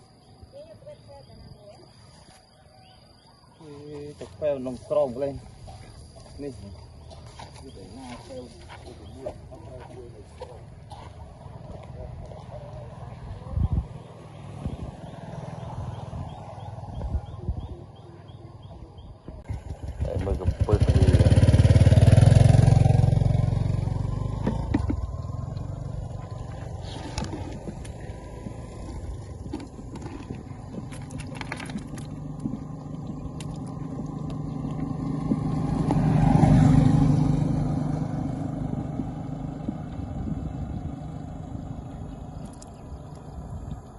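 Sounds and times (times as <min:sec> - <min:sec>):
small engine running: 0:19.5 - 0:43.4.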